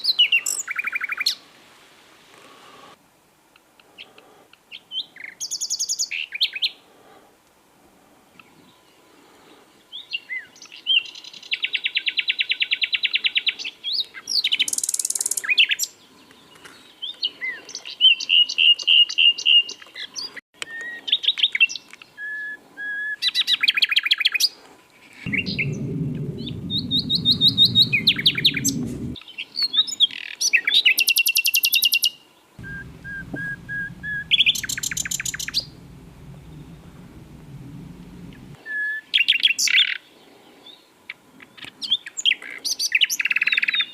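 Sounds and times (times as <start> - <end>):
low rumble: 25.3 - 29.2, 32.6 - 38.6
nightingale singing: 32.6 - 38.3.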